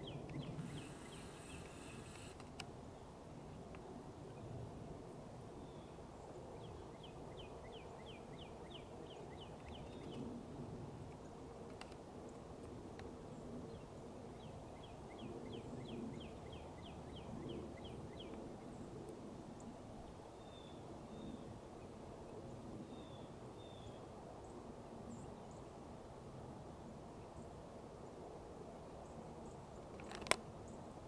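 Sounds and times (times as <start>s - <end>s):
songbird singing: 0.0s - 2.4s, 13.8s - 18.4s.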